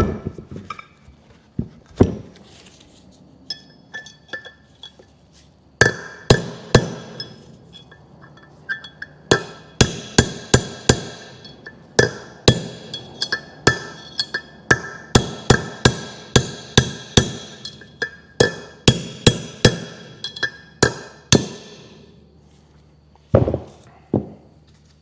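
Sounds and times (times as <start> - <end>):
hammer striking metal punch: 5.8 - 22.0.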